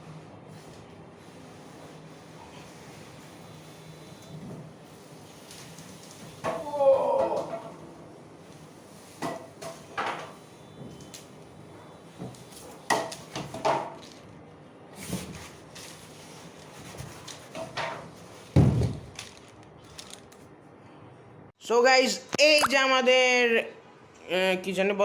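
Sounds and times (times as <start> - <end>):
packaging rustling and scraping: 12.3 - 20.5.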